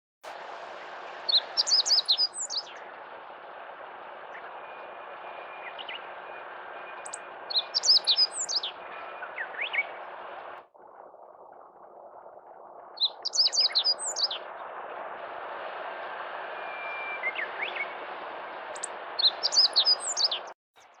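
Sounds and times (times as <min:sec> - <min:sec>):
bird chirping: 0:01.0 - 0:10.6, 0:13.0 - 0:14.8, 0:16.6 - 0:18.0, 0:18.6 - 0:21.0.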